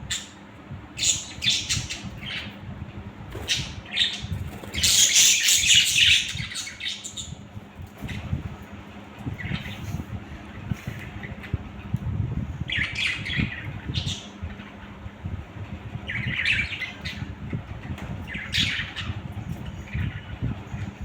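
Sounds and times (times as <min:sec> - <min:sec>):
low background rumble: 0:00.0 - 0:21.0
budgerigars squawking: 0:03.4 - 0:07.4.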